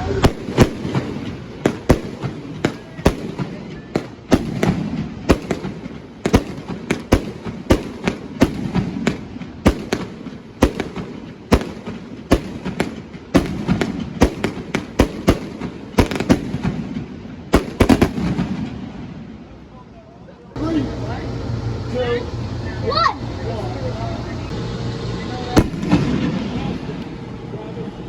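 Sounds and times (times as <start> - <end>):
fireworks bangs: 0.0 - 19.8, 24.5 - 27.4.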